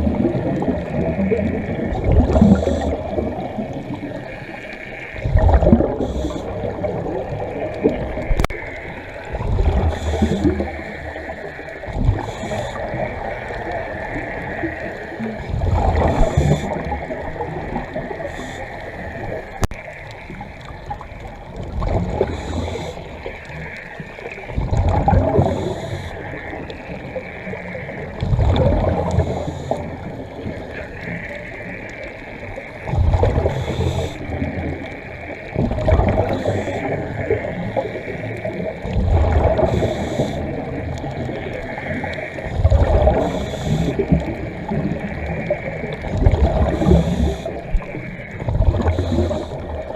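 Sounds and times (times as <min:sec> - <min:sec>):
exhaled air bubbling underwater: 0:00.0 - 0:49.9
regulator inhale hiss: 0:05.9 - 0:06.8, 0:09.8 - 0:11.5, 0:12.2 - 0:14.1, 0:18.2 - 0:19.4, 0:22.2 - 0:23.8, 0:25.2 - 0:26.6, 0:29.0 - 0:30.4, 0:33.4 - 0:34.6, 0:39.5 - 0:40.7, 0:43.1 - 0:44.3, 0:46.6 - 0:47.8, 0:48.8 - 0:49.7.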